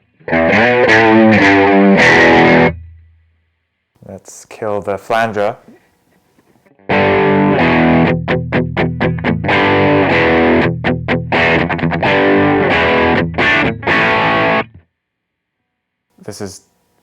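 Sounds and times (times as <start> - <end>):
distorted electric guitar chords: 0.0 - 3.0, 6.8 - 14.8.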